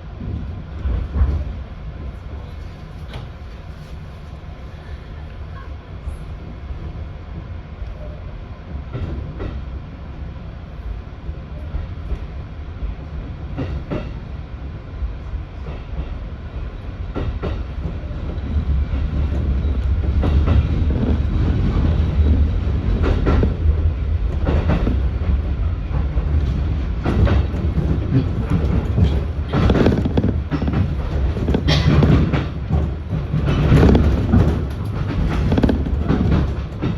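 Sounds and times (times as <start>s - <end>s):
low train rumble: 0.0s - 36.9s
train wheels clacking on rail joints: 13.2s - 14.3s, 15.6s - 36.9s.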